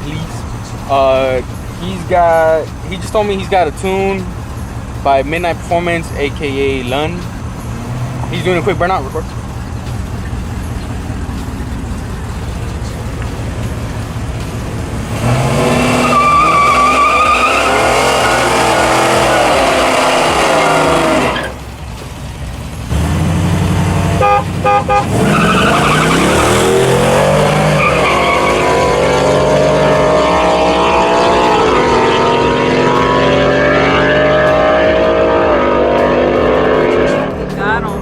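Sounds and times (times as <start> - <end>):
car engine revving: 0.0 - 38.0
tyre squeal: 15.1 - 21.7, 24.8 - 37.4
car horn honks: 24.1 - 29.0.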